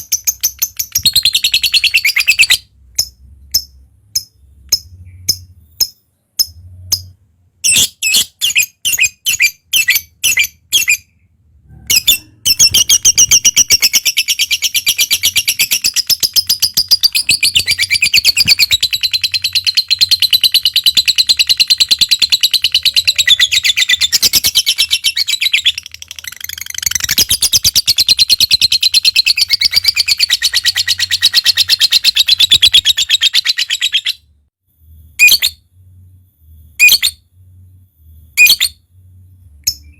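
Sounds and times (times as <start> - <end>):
lovebird chirps and chattering trill: 0.0 - 11.2, 11.9 - 34.2, 38.4 - 38.8.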